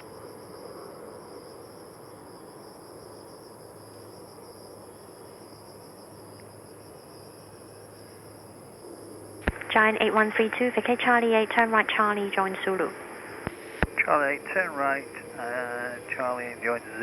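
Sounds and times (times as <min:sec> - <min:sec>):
insects buzzing: 0:00.0 - 0:17.0
faint rushing background: 0:07.7 - 0:17.0
low hum: 0:09.4 - 0:17.0.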